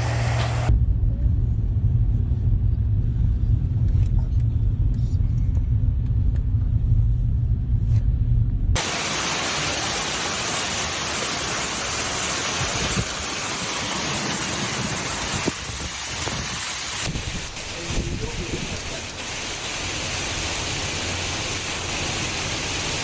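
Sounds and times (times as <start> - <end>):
low rumble: 0.0 - 23.0
heavy rain pouring: 8.8 - 23.0.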